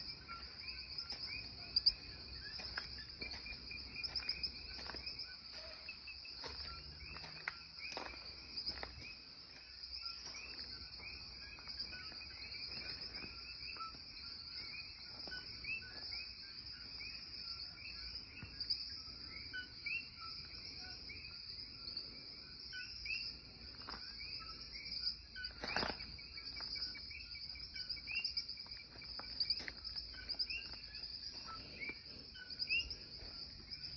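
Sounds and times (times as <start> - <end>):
insects chirping: 0.0 - 33.9.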